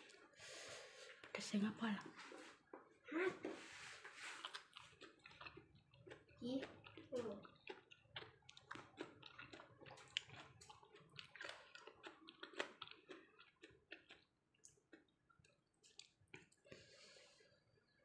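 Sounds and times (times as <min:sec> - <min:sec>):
wet chewing mouth clicks: 0:04.3 - 0:16.8.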